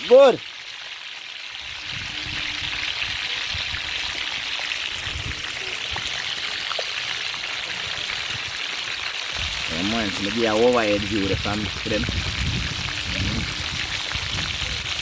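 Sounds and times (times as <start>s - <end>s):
fish sizzling in hot oil: 0.0s - 15.0s
oil popping and crackling: 0.0s - 15.0s.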